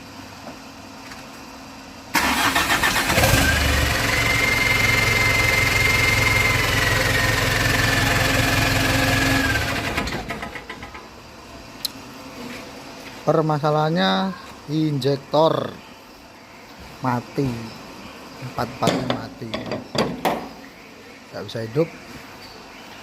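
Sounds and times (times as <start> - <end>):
diesel engine running with whine: 1.9 - 11.3
diesel engine starter cranking: 2.1 - 11.1.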